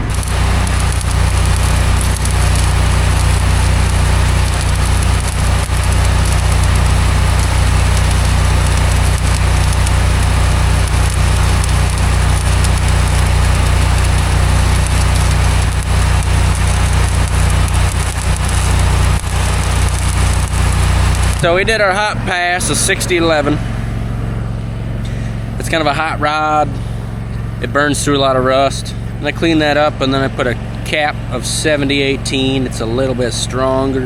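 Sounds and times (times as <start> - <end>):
engine running drone: 0.0 - 34.0
welding arc crackling: 0.0 - 34.0.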